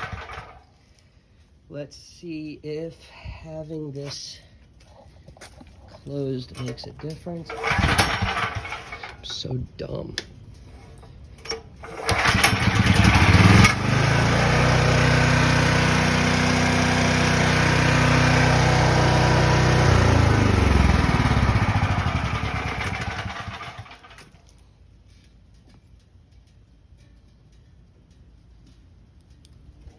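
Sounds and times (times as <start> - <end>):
generator engine starting and running: 0.0 - 1.7, 5.3 - 9.5, 10.2 - 24.6.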